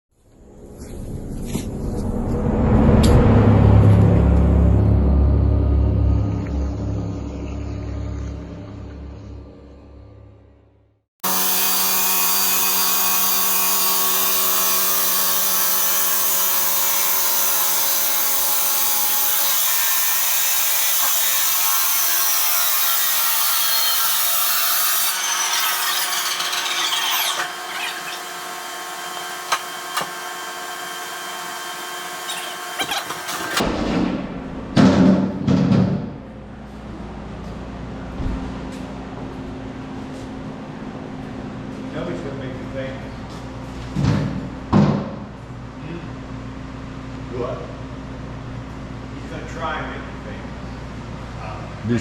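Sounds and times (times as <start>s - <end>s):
low rumble: 0.2s - 11.0s
power saw cutting brick: 11.2s - 33.6s.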